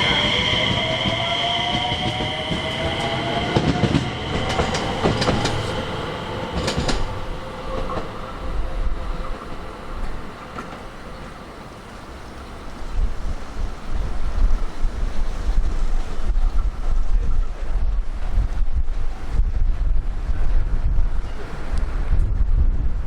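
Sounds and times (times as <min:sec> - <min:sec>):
train motor whine: 0:00.0 - 0:11.3
wheels clicking over rail joints: 0:03.6 - 0:12.6.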